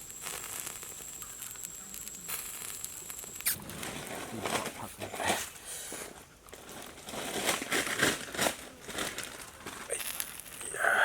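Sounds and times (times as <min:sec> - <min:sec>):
rustling and clicking handling noises: 0:03.6 - 0:10.6.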